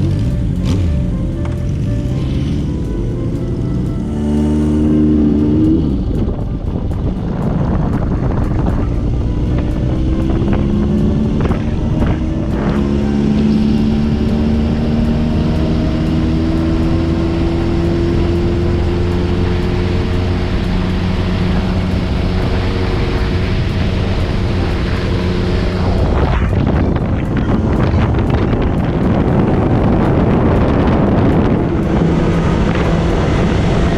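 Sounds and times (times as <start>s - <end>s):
motorcycle engine running: 0.0s - 33.9s
wind noise on microphone: 0.0s - 33.9s.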